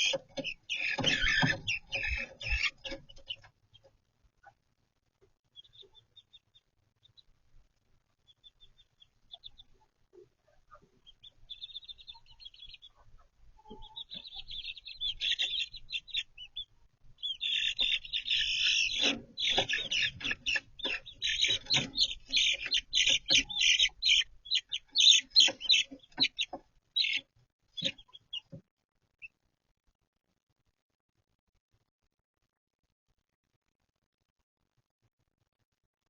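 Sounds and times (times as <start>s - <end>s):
clucks or scratching: 0.0s - 4.7s, 8.2s - 28.6s
chicks peeping: 0.0s - 29.4s.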